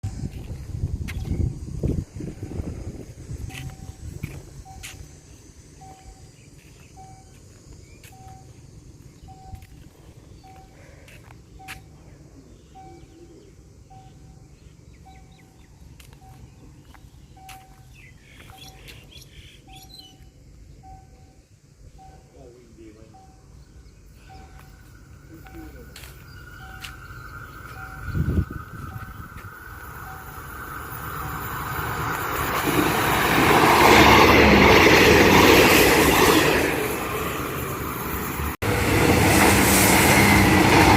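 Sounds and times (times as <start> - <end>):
diesel train passing at speed: 0.0 - 40.9
electronic warning beeps: 2.4 - 5.2, 5.8 - 8.6, 12.6 - 19.0, 20.8 - 31.5
birds chirping: 3.4 - 31.9.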